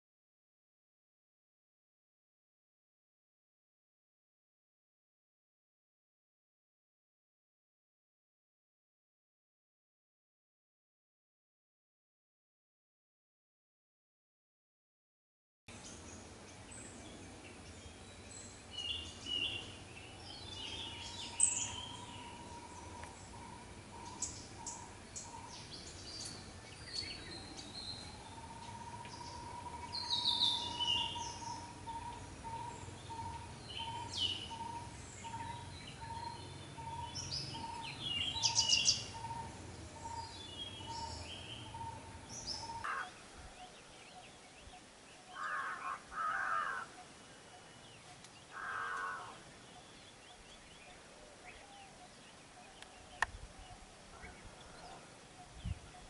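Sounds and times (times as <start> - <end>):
birds chattering: 17.1 - 56.0
rough low bird calls: 18.9 - 56.0.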